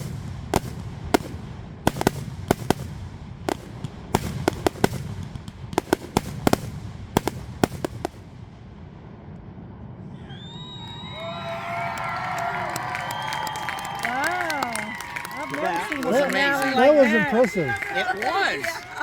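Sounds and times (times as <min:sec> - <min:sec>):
fireworks bangs and cracks: 0:00.0 - 0:09.8.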